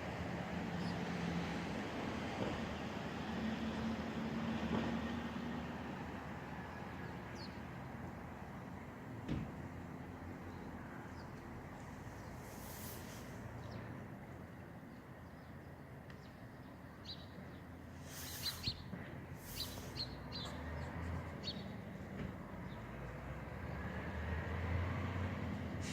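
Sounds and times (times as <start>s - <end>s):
hissing gusts of noise: 12.3s - 13.6s, 17.9s - 20.2s
small birds chirping: 14.8s - 23.0s.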